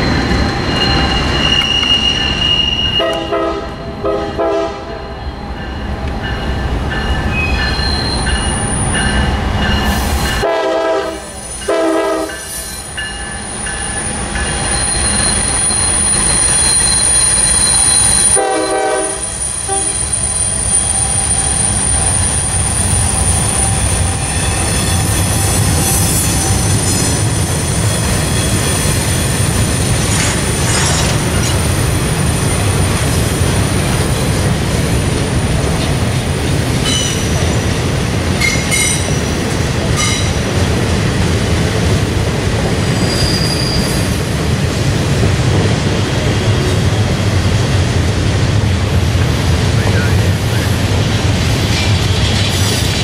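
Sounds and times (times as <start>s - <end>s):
steel wheel squeal: 0.0s - 3.2s, 6.9s - 10.4s, 12.3s - 18.4s, 19.2s - 29.4s, 42.8s - 44.2s
train rumbling past: 0.0s - 53.0s
train horn blasts: 3.0s - 5.1s, 10.4s - 12.5s, 18.3s - 20.1s.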